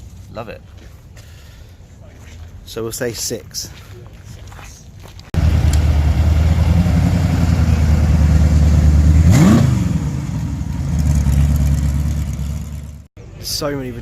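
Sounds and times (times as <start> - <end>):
car engine idling and blipped: 5.4 - 13.1.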